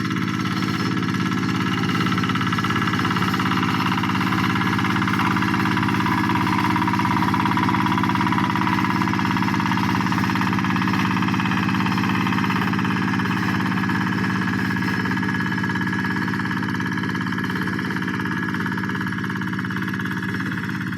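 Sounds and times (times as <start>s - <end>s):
hand tractor engine running: 0.0s - 20.9s.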